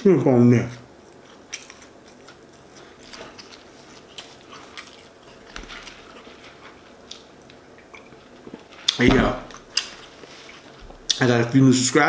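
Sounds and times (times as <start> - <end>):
faint chewing with mouth clicks: 1.0 - 11.5.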